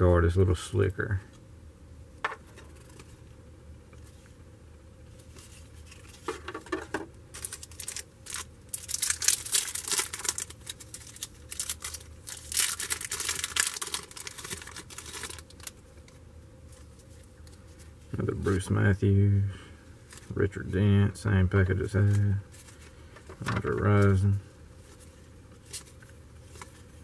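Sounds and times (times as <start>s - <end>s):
foil wrapper tearing and crinkling: 7.3s - 15.8s.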